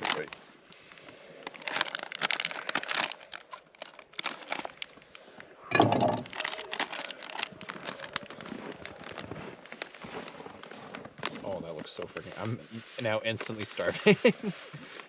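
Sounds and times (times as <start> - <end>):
plastic packet crinkling and tearing: 0.0 - 5.6, 6.3 - 12.3.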